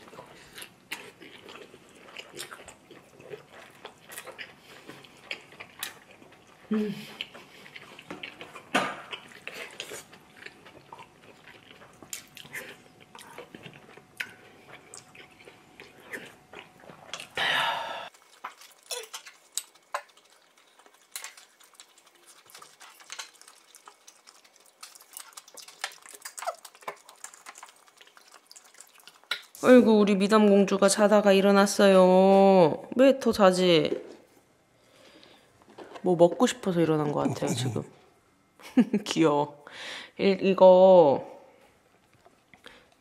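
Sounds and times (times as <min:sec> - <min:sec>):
chewing and mouth noises: 0:00.0 - 0:17.4, 0:18.1 - 0:29.7.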